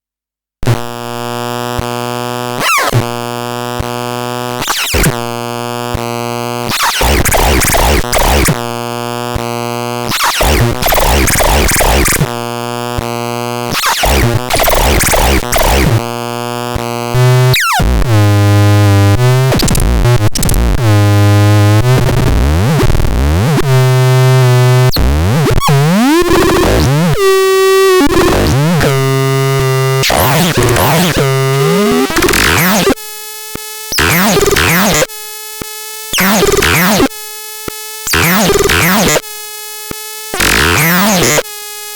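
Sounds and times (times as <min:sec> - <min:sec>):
synthesizer electronic tones: 0:06.8 - 0:08.6, 0:10.2 - 0:12.2, 0:13.8 - 0:16.0, 0:25.6 - 0:33.0, 0:34.0 - 0:35.0, 0:36.2 - 0:37.0.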